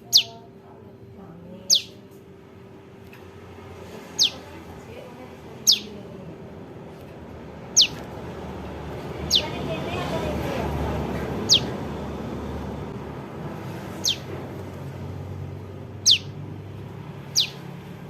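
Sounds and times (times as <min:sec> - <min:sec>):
young bird high calls: 0:00.0 - 0:00.4, 0:01.7 - 0:02.0, 0:04.1 - 0:04.5, 0:05.6 - 0:06.0, 0:07.7 - 0:08.0, 0:09.2 - 0:09.7, 0:11.2 - 0:11.8, 0:14.0 - 0:14.4, 0:16.0 - 0:16.4, 0:17.3 - 0:17.7
faint steady hum: 0:00.0 - 0:18.0.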